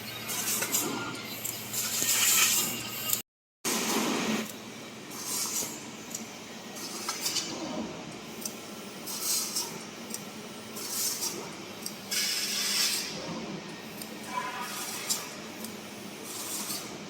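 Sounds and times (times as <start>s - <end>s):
laser cutter hiss bursts: 12.1s - 13.2s, 13.8s - 17.0s.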